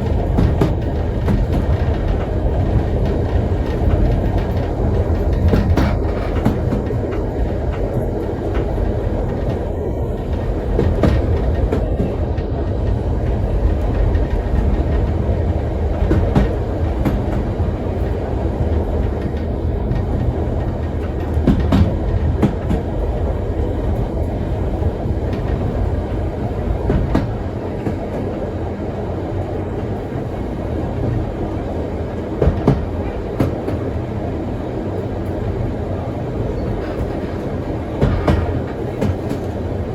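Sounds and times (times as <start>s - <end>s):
rail joint clicks and knocks: 0.0s - 39.9s
train wheels rumbling on rail: 0.0s - 39.9s.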